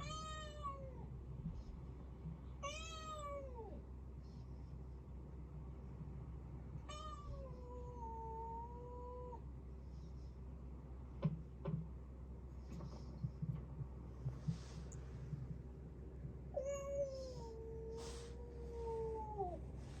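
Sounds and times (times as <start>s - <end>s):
cat meowing: 0.0s - 1.0s, 2.6s - 3.8s, 6.8s - 9.4s.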